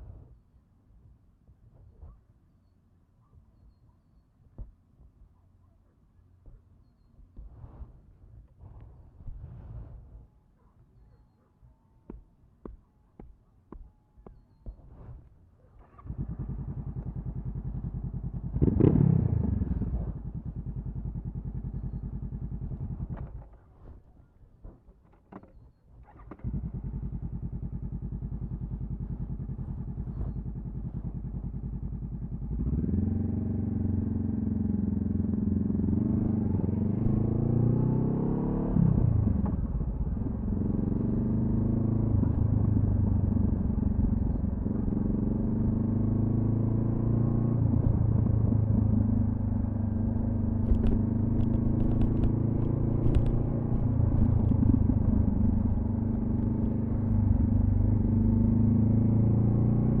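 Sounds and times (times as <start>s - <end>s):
motorcycle pulling away: 15.8s - 23.5s, 26.0s - 60.0s
motorcycle engine idling: 15.8s - 23.7s, 26.1s - 35.6s, 47.7s - 58.7s.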